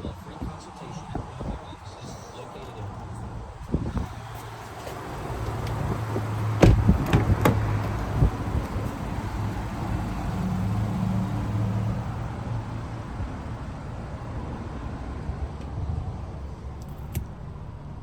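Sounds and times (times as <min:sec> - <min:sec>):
car engine humming: 0:01.8 - 0:18.0
sharp knocks: 0:06.1 - 0:08.0.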